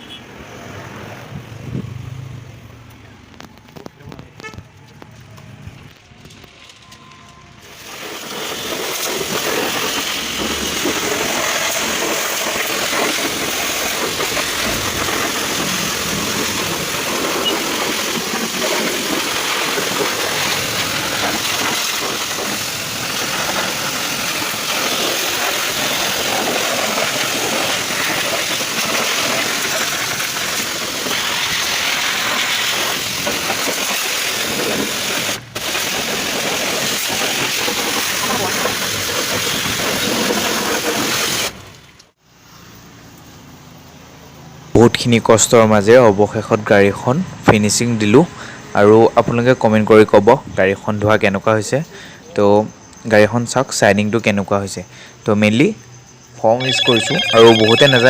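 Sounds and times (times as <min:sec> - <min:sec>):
pressure washer spraying: 0:07.7 - 0:41.6.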